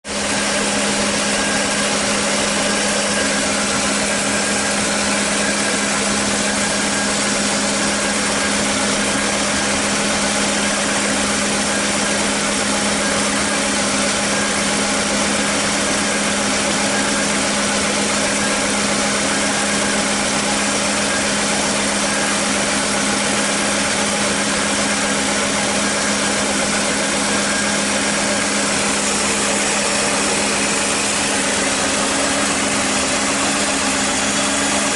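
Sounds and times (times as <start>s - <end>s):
car engine idling: 25.4s - 34.9s.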